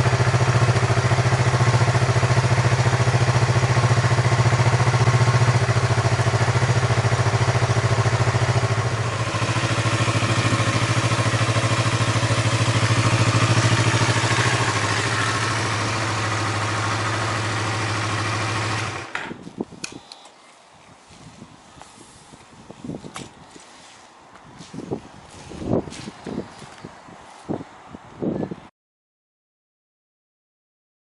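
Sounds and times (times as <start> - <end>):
motorcycle engine idling: 0.0 - 19.2.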